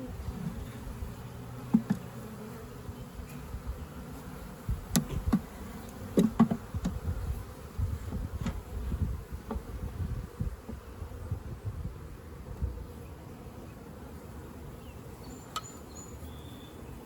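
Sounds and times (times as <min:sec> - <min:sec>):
bees buzzing: 0:00.0 - 0:17.0
sharp knocks: 0:06.2 - 0:07.0.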